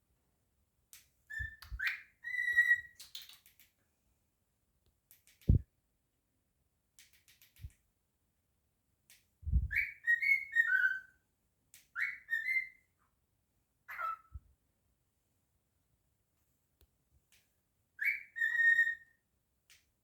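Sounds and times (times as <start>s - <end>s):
cockatiel whistling: 1.3s - 3.0s, 9.6s - 11.1s, 12.0s - 12.8s, 18.0s - 19.1s
faint clicks: 3.0s - 3.8s, 5.1s - 5.6s, 7.0s - 7.8s
soft low thumps: 9.5s - 9.8s.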